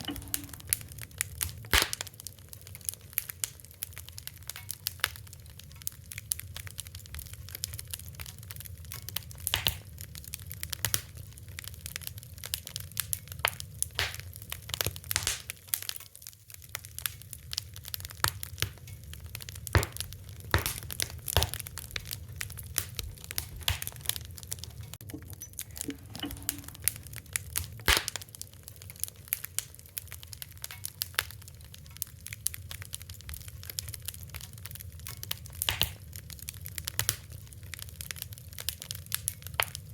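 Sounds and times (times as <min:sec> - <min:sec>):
low rush of flame: 0:00.0 - 0:04.4, 0:17.3 - 0:39.4
wood fire crackling: 0:00.0 - 0:39.9.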